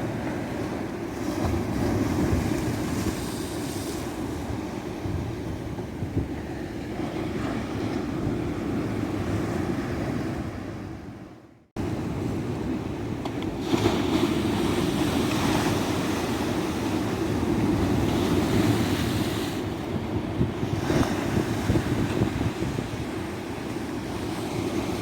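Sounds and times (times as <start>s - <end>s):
ocean waves rumbling: 0.0s - 25.0s
wind buffeting microphone: 0.0s - 25.0s.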